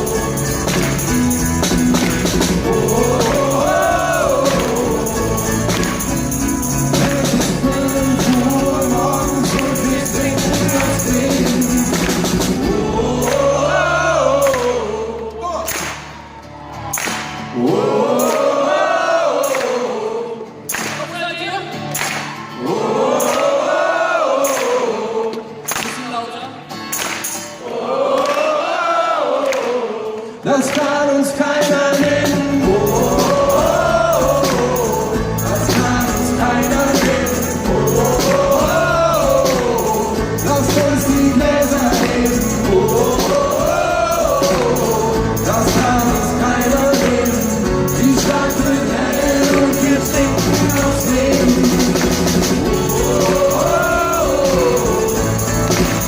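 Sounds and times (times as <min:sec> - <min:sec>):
drums steady beat: 0:00.0 - 0:13.7, 0:31.6 - 0:56.0
voices singing wordless melody: 0:00.0 - 0:16.0, 0:17.5 - 0:21.0, 0:22.5 - 0:25.8, 0:27.6 - 0:56.0
bass and keyboard notes: 0:00.0 - 0:18.0, 0:31.8 - 0:56.0
band playing pop-rock: 0:00.0 - 0:18.6, 0:30.8 - 0:56.0.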